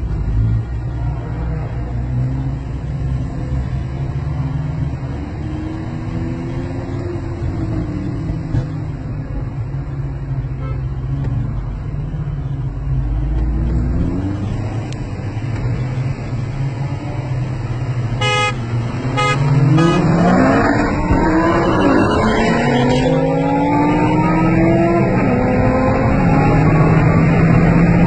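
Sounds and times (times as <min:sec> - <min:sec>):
car engines accelerating: 0:00.0 - 0:28.0
car horn toots: 0:18.2 - 0:20.4.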